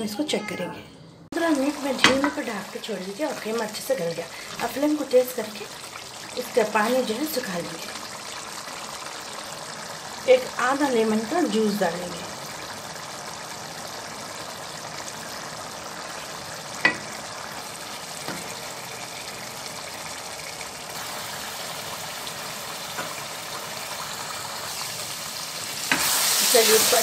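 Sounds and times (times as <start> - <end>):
meat sizzling and bubbling: 1.3 - 27.0.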